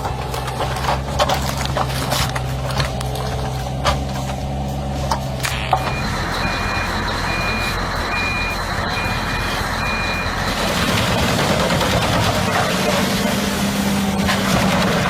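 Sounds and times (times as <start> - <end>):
heavy machine running: 0.0 - 15.0
reversing alarm beeping: 5.4 - 11.2.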